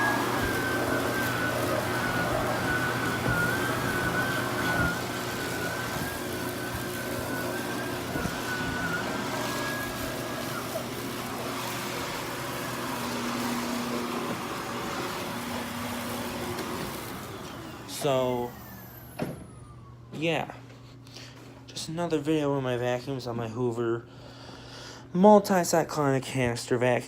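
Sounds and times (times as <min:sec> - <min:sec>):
high wavering whine: 0:00.0 - 0:13.5
vacuum cleaner running: 0:00.0 - 0:20.6.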